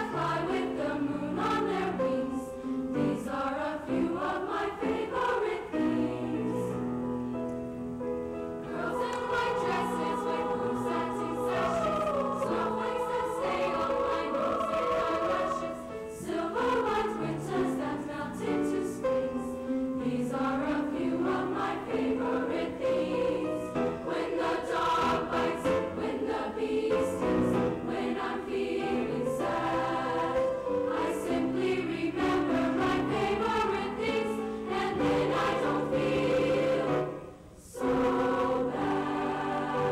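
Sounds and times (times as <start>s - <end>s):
school choir singing: 0.0s - 6.9s, 8.6s - 39.9s.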